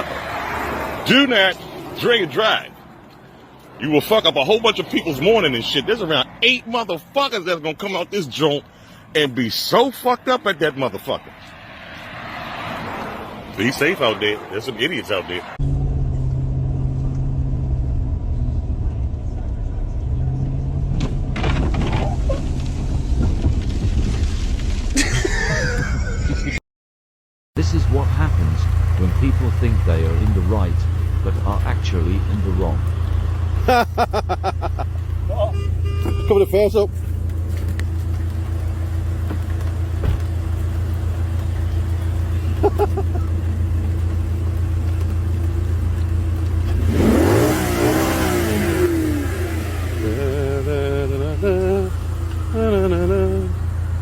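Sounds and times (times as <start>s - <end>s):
vehicle engine revving: 11.8s - 23.7s, 27.6s - 54.0s
car rumble from inside: 15.6s - 26.6s, 27.6s - 54.0s.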